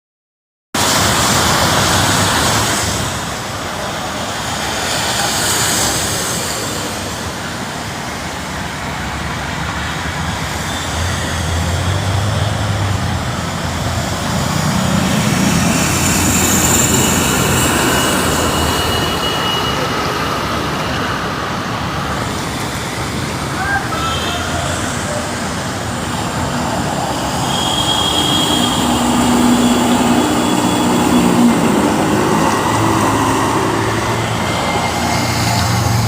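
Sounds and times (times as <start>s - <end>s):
road traffic rushing: 0.8s - 36.0s.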